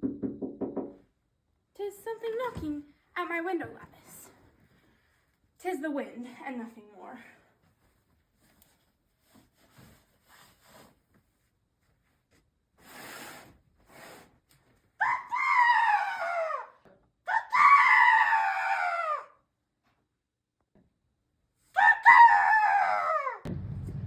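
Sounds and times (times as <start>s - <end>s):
soft rustles: 7.5s - 12.6s
raven cries: 15.0s - 19.4s, 21.8s - 23.5s.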